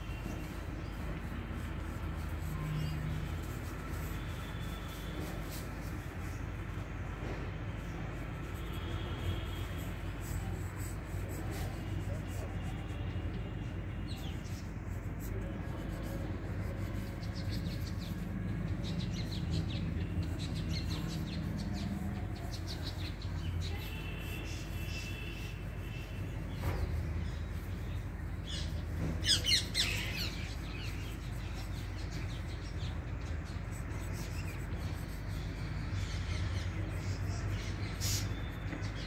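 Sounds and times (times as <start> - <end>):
birds chirping: 16.9 - 39.0.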